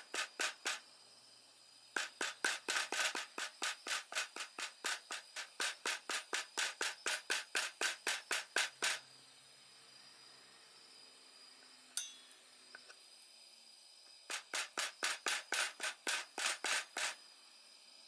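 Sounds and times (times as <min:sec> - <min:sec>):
rasping back-and-forth strokes: 0:00.0 - 0:00.8, 0:02.0 - 0:09.0, 0:14.3 - 0:17.2
sharp click: 0:00.1 - 0:00.8, 0:02.0 - 0:09.0.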